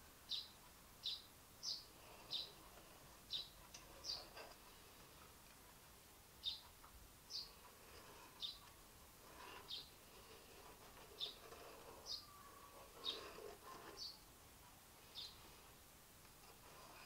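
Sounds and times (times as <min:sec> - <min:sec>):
small bird chirping: 0:00.3 - 0:05.0, 0:06.4 - 0:14.3, 0:15.0 - 0:15.6.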